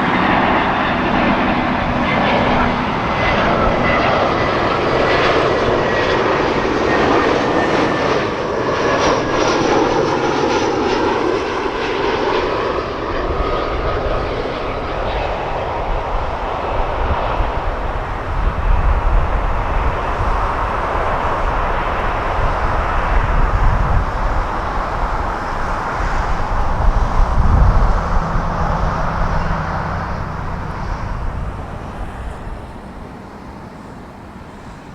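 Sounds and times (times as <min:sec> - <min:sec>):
jet engine whine: 0:00.0 - 0:34.9
deep rumble: 0:18.4 - 0:33.3.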